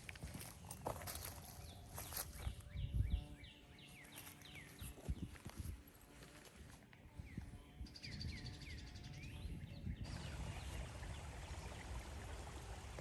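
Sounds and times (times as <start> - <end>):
birds chirping: 0.2 - 12.8
low outdoor rumble: 10.0 - 13.0.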